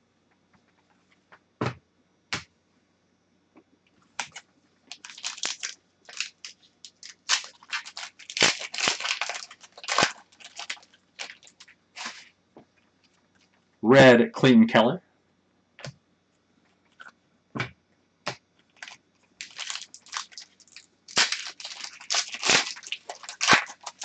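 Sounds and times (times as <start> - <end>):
plastic wrapper crinkling: 4.2 - 12.4, 18.7 - 24.0.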